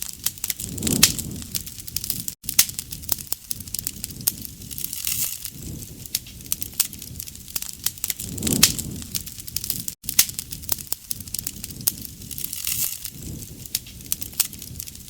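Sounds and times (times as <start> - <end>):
wood fire crackling and popping: 0.0 - 15.0
low rumble: 8.2 - 9.9.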